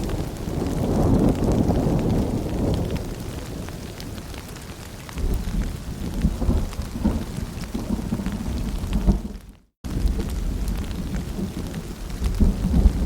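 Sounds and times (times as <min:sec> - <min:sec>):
rain patter and drips: 0:00.0 - 0:13.0.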